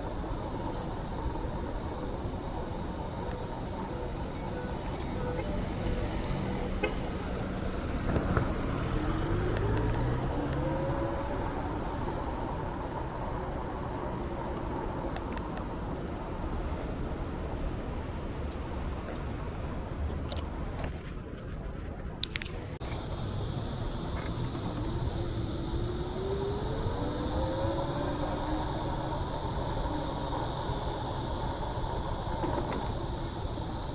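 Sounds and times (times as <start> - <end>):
vehicle motor whine rising: 0.0 - 15.1, 22.8 - 33.9
passing vehicles rumbling: 0.0 - 33.9.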